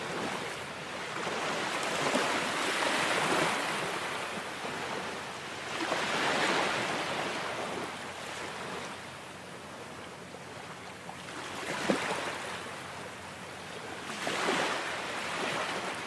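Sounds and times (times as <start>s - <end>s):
ocean surf washing on shore: 0.0s - 9.9s, 14.0s - 16.0s.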